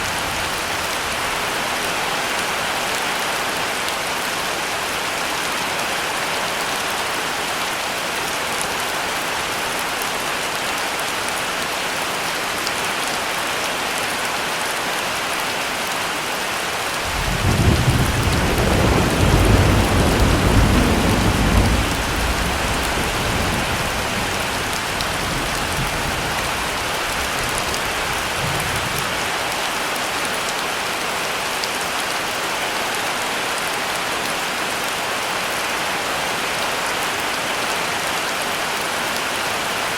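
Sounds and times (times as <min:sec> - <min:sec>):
heavy rain falling: 0:00.0 - 0:39.9
thunder rumbling: 0:17.1 - 0:26.6.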